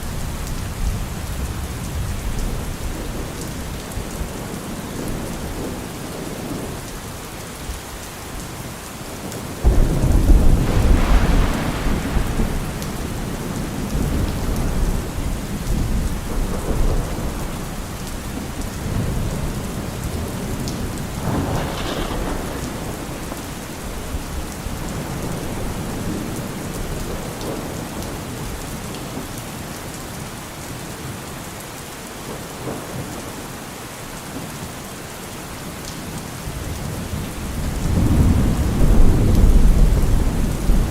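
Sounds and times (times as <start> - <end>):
steady rain: 0.0 - 40.9
thunder rumbling: 9.4 - 28.5, 36.6 - 40.9.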